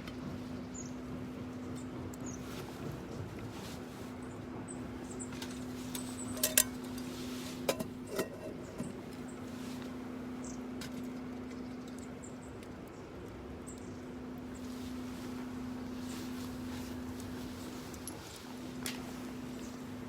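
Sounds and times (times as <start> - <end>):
low hum: 3.9 - 20.0
metallic clinks of cookware: 6.3 - 6.8.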